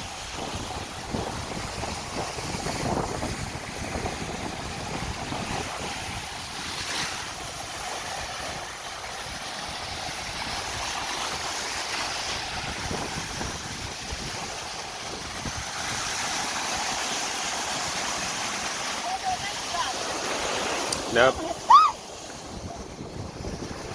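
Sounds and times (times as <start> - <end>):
sea waves washing onto beach: 0.0 - 23.9
wind buffeting microphone: 0.0 - 23.9.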